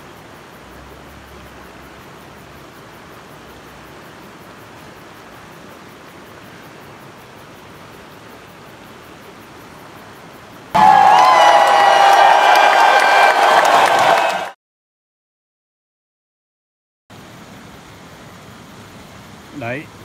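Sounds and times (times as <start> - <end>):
creek water flowing: 17.2 - 20.0.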